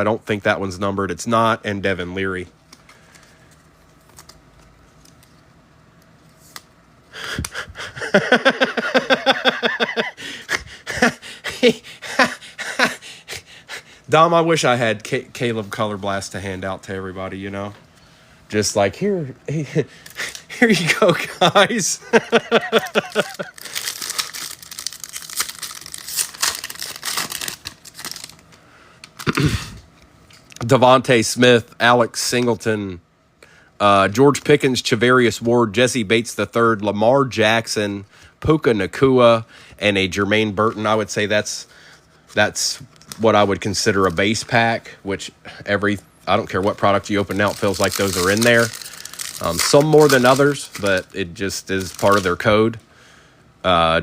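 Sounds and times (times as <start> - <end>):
foil wrapper tearing and crinkling: 22.6 - 28.4, 46.7 - 52.5.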